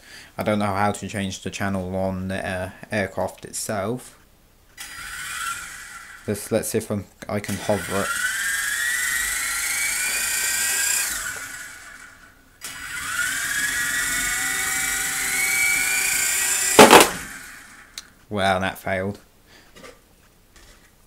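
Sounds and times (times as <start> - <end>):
toy helicopter motors whining: 4.8 - 6.5, 7.4 - 18.0
loud short crash: 16.8 - 17.4.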